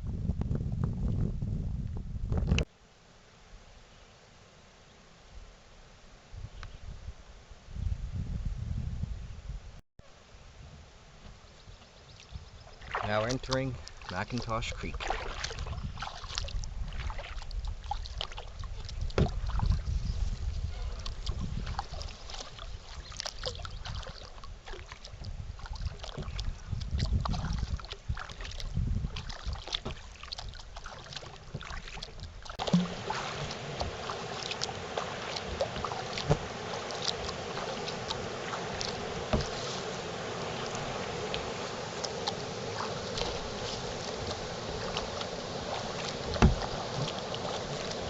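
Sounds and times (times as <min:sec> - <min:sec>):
paddle splashing and dripping: 0:11.7 - 0:48.0
steady hiss: 0:32.8 - 0:48.0.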